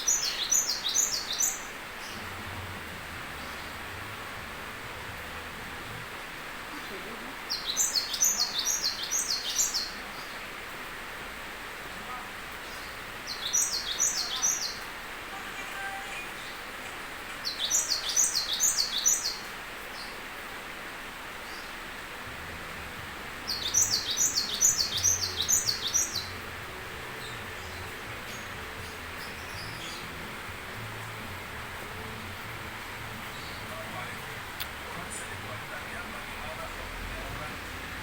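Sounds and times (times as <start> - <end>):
background hiss: 0.0 - 38.0
songbird singing: 0.0 - 38.0.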